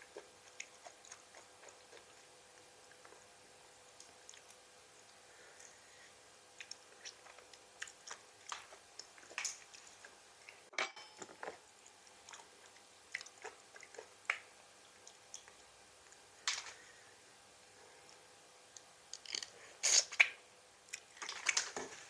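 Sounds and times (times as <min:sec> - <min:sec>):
person chewing crunchy food: 0:00.0 - 0:03.3, 0:04.0 - 0:05.9, 0:06.5 - 0:14.4.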